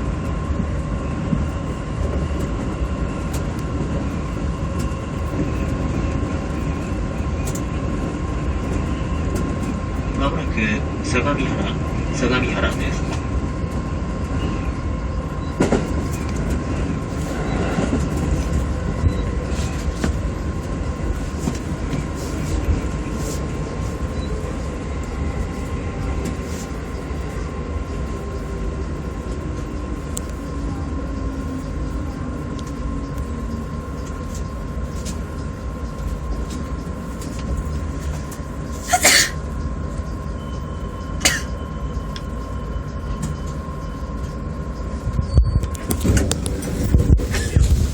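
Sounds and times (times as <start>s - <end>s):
train motor whine: 0.0s - 47.9s
train wheels and motors rumbling: 0.0s - 47.9s
sharp brake screeches: 38.8s - 39.4s.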